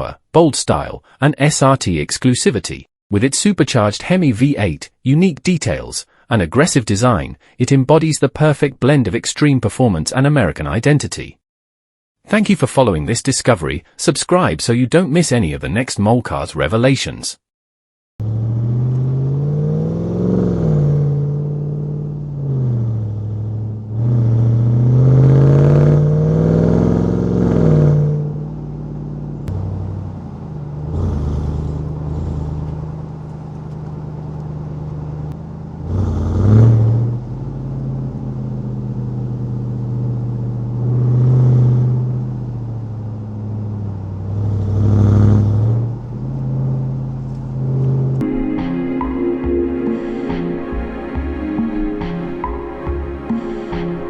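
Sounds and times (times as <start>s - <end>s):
truck engine accelerating: 18.2s - 54.0s.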